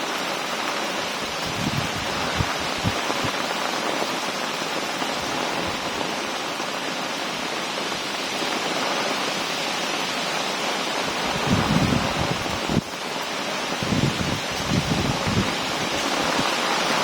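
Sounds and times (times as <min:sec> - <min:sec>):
heavy rain pouring: 0:00.0 - 0:17.0
wind buffeting microphone: 0:00.9 - 0:03.9, 0:11.0 - 0:13.0, 0:13.6 - 0:17.0.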